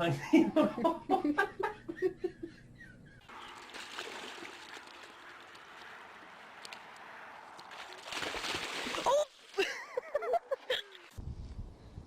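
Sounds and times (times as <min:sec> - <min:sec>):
water rushing: 0:03.3 - 0:09.6.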